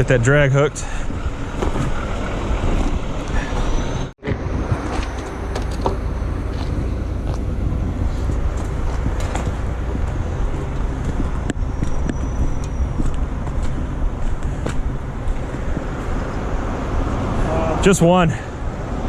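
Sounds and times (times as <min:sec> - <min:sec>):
diesel truck engines running: 0:00.0 - 0:19.0.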